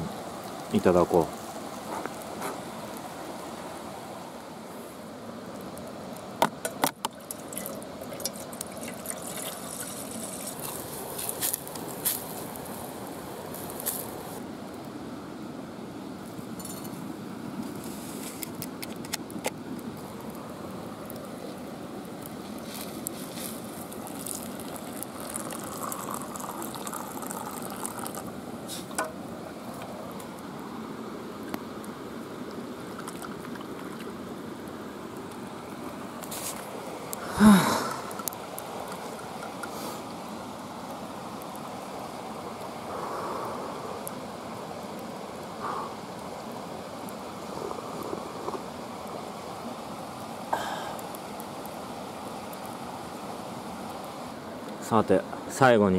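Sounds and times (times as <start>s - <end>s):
running water rushing: 0.0s - 14.8s, 19.7s - 55.9s
sharp clicks and pops: 18.4s - 19.6s.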